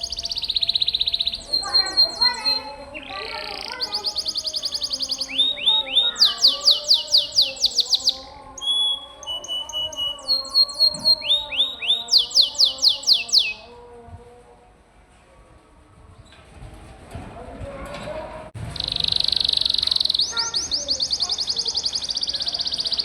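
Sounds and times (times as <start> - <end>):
canary singing trills: 0.0 - 13.7, 18.6 - 23.0.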